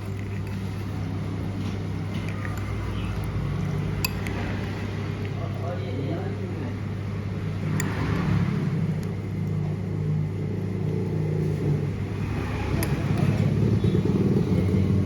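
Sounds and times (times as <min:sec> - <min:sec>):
traffic engines rumbling: 0:00.0 - 0:15.0.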